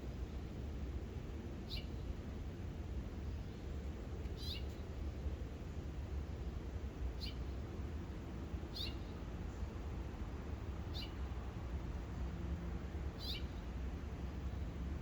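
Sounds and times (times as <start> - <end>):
bird chirping: 4.4 - 4.7, 7.2 - 7.4, 8.7 - 9.1, 10.9 - 11.2, 13.2 - 13.6.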